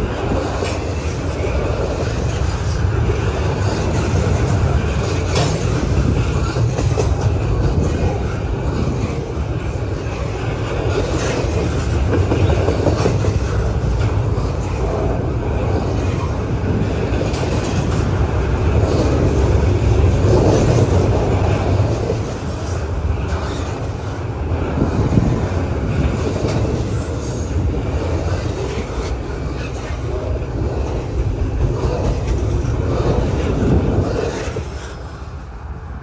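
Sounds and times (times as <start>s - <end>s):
wheels clicking over rail joints: 0.0s - 35.6s
freight train wheels rumbling: 0.0s - 36.0s.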